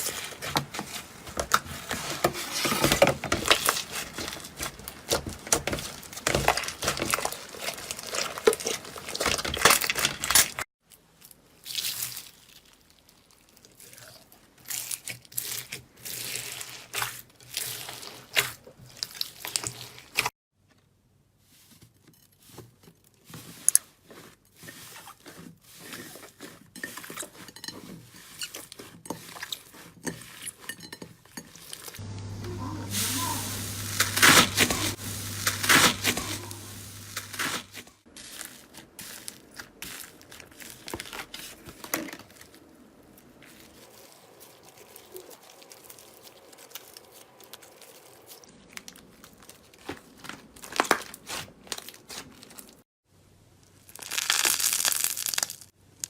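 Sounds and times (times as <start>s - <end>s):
slime squishing and popping: 53.9s - 55.7s.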